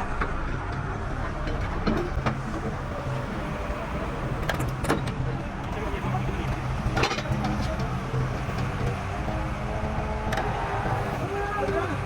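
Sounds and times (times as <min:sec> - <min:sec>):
heavy machine engine running: 0:00.0 - 0:12.0.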